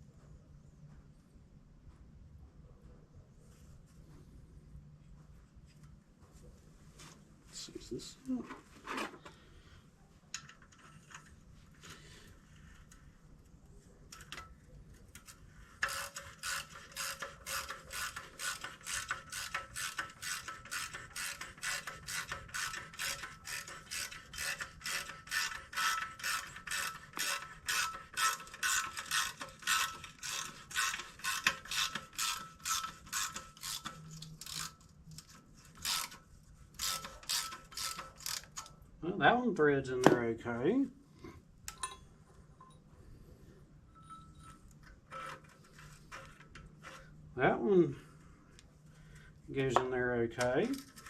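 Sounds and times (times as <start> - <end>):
ratchet wrench clicking: 15.2 - 36.2, 36.8 - 38.7.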